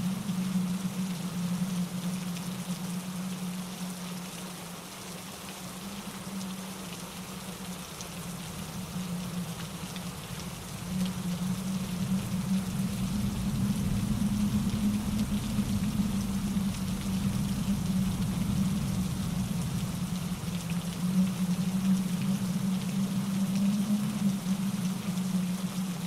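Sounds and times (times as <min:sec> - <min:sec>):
raindrop patter: 0:00.0 - 0:26.0
wind in trees: 0:00.0 - 0:26.0
stream tumbling over rocks: 0:05.4 - 0:26.0.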